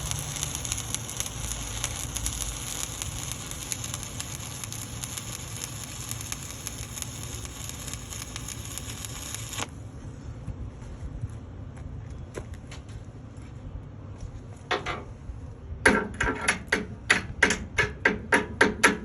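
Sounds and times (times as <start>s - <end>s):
welding arc crackling sizzle: 0.0s - 9.8s.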